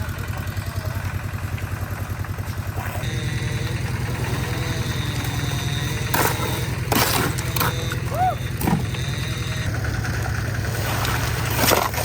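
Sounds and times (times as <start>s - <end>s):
concrete mixer engine chugging: 0.0s - 12.0s.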